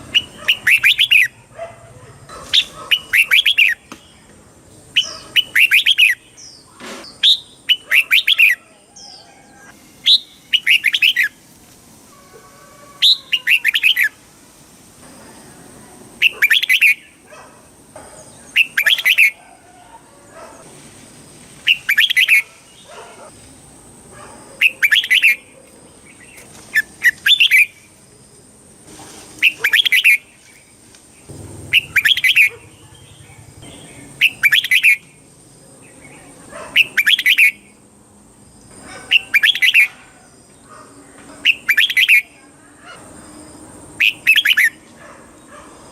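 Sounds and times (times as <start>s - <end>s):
bird singing whistled phrases: 0.1s - 1.4s, 10.0s - 11.3s, 13.0s - 14.1s, 16.2s - 17.1s, 18.6s - 19.4s, 24.6s - 25.4s, 31.7s - 32.5s, 34.2s - 35.0s, 36.8s - 37.6s, 44.0s - 44.8s.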